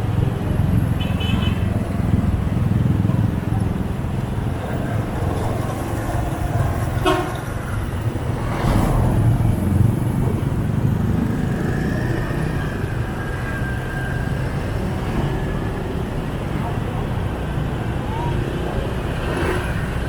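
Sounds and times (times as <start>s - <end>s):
rumble of traffic engines: 0.0s - 20.0s
vehicle passing close: 7.6s - 13.6s.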